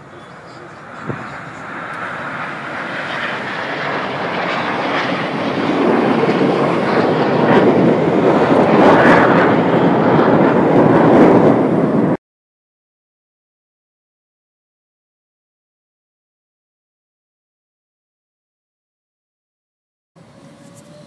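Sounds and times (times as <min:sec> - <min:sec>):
jet aircraft flying past: 0:00.0 - 0:12.2, 0:20.2 - 0:21.0.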